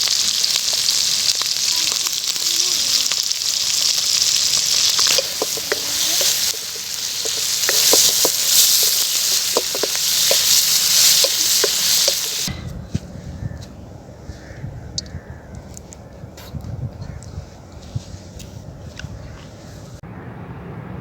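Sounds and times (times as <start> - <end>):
fat popping and crackling: 0.0 - 12.5
liver sizzling in a pan: 0.0 - 12.5.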